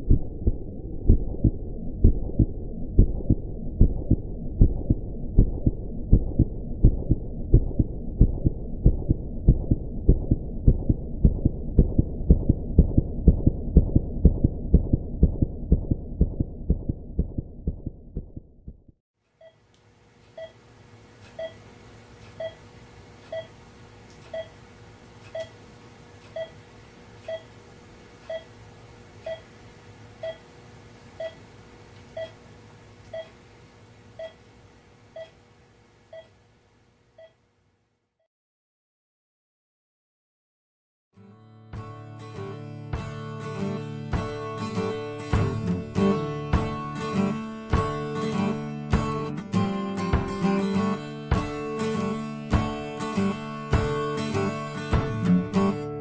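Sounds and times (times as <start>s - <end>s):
steady hum: 0.0s - 18.8s
fast heartbeat: 0.0s - 19.0s
heart monitor beeps: 0.1s - 18.4s, 19.4s - 19.6s, 20.3s - 20.6s, 21.3s - 21.6s, 22.3s - 22.6s, 23.3s - 23.6s, 24.3s - 24.6s, 25.3s - 25.6s, 26.3s - 26.6s, 27.2s - 27.5s, 28.3s - 28.5s, 29.2s - 29.5s, 30.2s - 30.4s, 31.2s - 31.4s, 32.2s - 32.4s, 33.1s - 33.3s, 34.2s - 34.4s, 35.2s - 35.4s, 36.1s - 36.4s, 37.2s - 37.4s.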